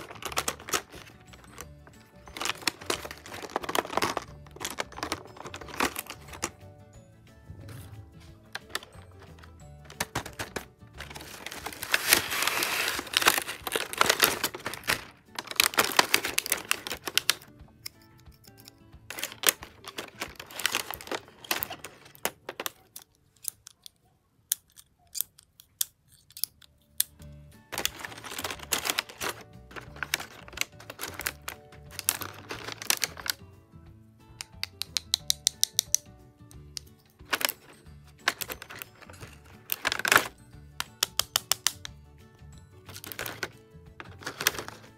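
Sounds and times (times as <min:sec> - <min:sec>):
plastic packaging crinkling: 0:00.0 - 0:06.6, 0:08.3 - 0:17.5, 0:18.6 - 0:23.6, 0:27.7 - 0:33.4, 0:37.2 - 0:41.8, 0:42.8 - 0:44.9
background music: 0:00.0 - 0:23.0, 0:26.3 - 0:44.9
sharp clicks of stationery: 0:34.4 - 0:36.1, 0:39.8 - 0:41.9.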